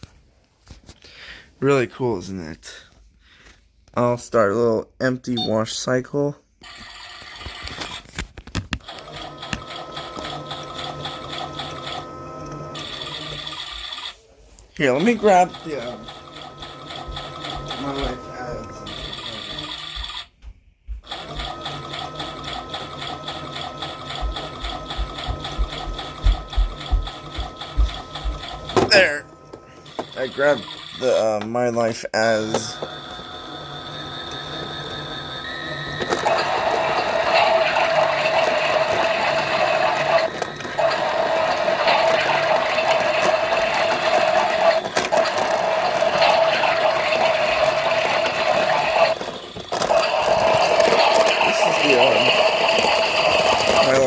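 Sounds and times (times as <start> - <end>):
toy washing machine motor whirring: 6.6 - 8.2, 8.8 - 20.4, 21.0 - 54.0.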